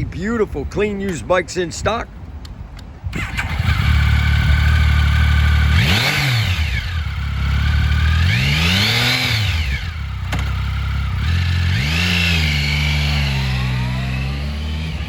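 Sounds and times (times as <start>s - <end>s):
motorcycle engine starting and idling: 3.0s - 15.0s
motorcycle engine revving: 3.1s - 15.0s.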